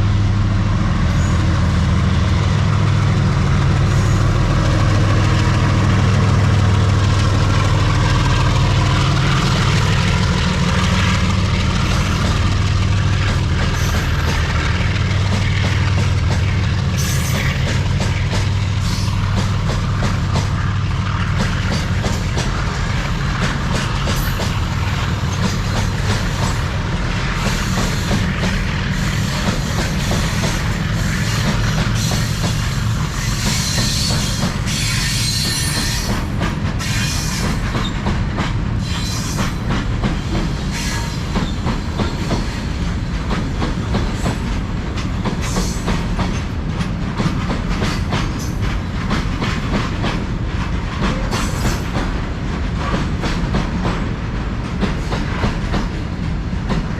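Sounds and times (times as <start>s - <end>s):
freight train rumble: 0.0s - 56.9s
wheels clacking over rail joints: 2.8s - 56.9s.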